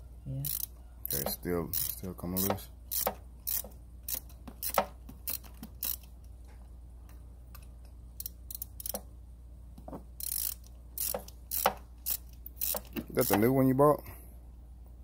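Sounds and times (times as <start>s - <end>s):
ratchet wrench clicking: 0.4s - 6.2s, 8.2s - 9.1s, 10.2s - 13.5s.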